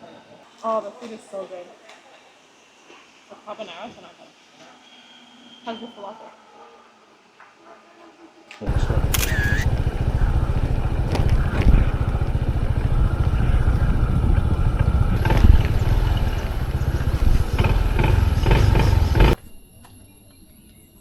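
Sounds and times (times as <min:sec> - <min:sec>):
motorcycle engine rumbling: 0:08.6 - 0:19.5.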